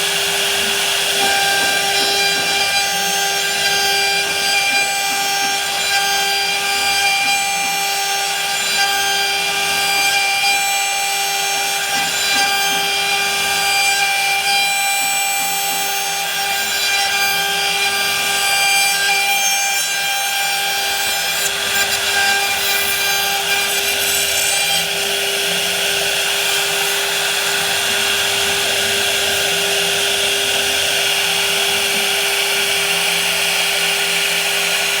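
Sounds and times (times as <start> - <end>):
power tool whining on wood: 0.0 - 35.0.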